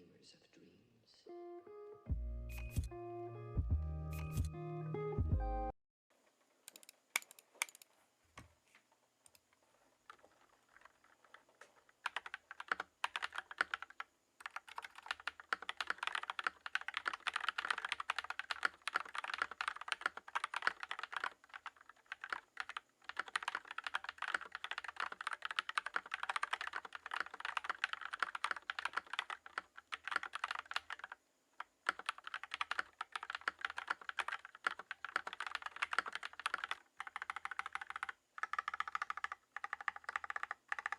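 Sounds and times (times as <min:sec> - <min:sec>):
mechanical keyboard typing: 0:10.0 - 0:40.9.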